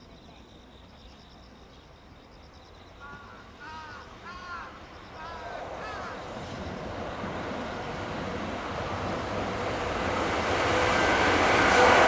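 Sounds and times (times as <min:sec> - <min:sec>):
train wheels rumbling on rail: 0:05.2 - 0:12.0.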